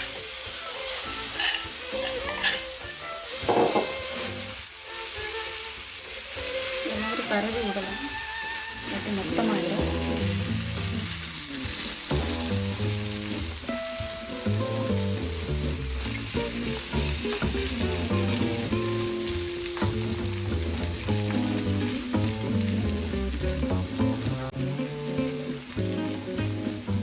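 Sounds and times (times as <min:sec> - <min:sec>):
background music: 0:00.0 - 0:10.4, 0:11.5 - 0:27.0
batter sizzling on a hot griddle: 0:11.5 - 0:24.5.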